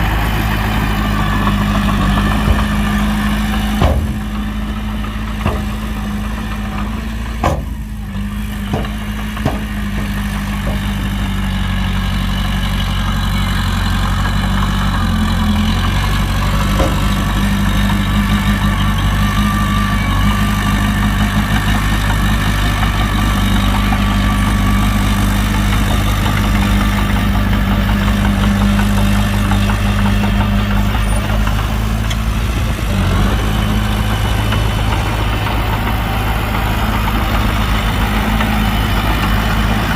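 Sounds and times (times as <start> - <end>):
heavy diesel engine running: 0.0 - 39.9
sharp knocks: 2.3 - 4.6, 5.3 - 6.4, 7.3 - 8.0, 8.6 - 11.1, 16.6 - 17.4.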